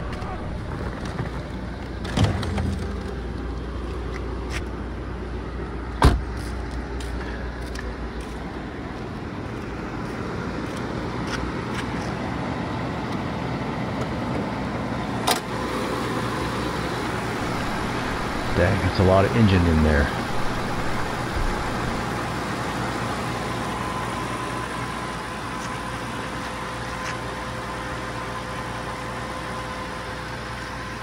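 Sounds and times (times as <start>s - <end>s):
car engine idling: 0.0s - 31.0s
car door shutting: 6.0s - 6.4s.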